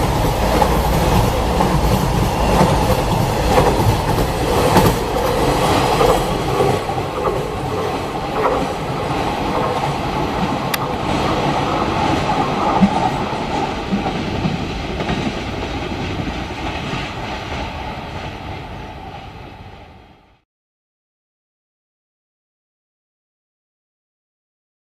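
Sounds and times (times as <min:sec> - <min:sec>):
train wheels clacking over rail joints: 0:00.0 - 0:17.8.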